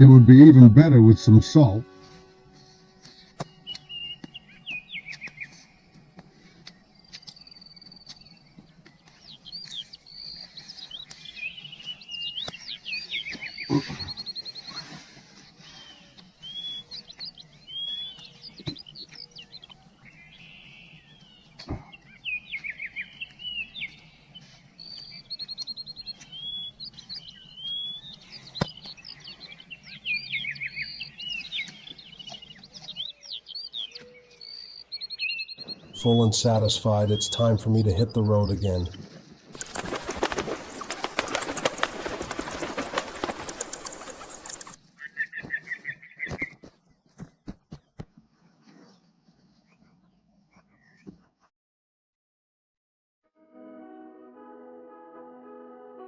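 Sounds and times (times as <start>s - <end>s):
birds chirping and trilling: 2.8s - 39.0s, 39.6s - 44.8s.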